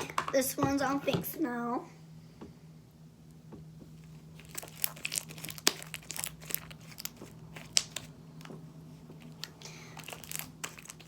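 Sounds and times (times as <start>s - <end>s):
slime squeezed by hand: 9.1s - 11.0s.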